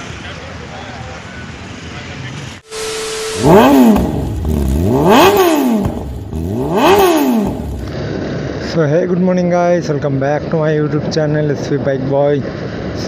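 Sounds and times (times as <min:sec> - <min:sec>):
motorbike engine revving: 0:02.7 - 0:08.2.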